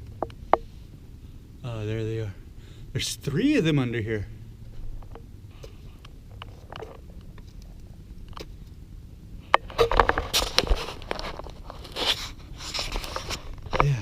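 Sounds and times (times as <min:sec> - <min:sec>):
rustling scraping and crackling: 0:04.6 - 0:08.8, 0:09.4 - 0:14.0.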